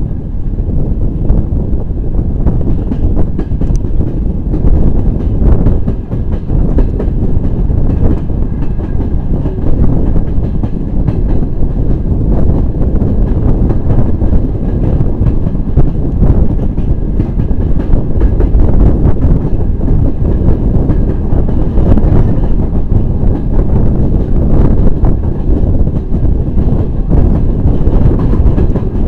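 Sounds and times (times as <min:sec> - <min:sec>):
train wheel and track rumble: 0:00.0 - 0:29.0.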